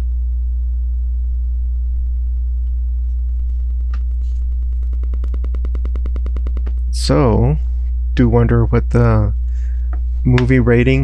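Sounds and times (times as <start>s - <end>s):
low electrical mains hum: 0.0s - 11.0s
fast even ticking: 3.4s - 7.6s.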